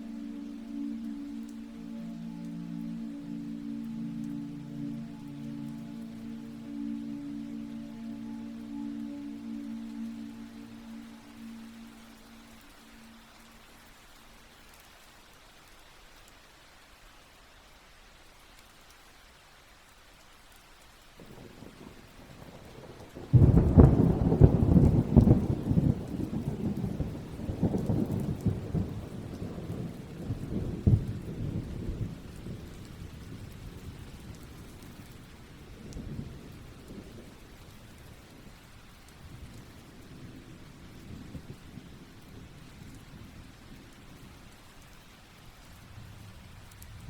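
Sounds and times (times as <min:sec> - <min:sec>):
steady rain: 0:00.0 - 0:47.0
thunder rumbling: 0:21.2 - 0:44.6.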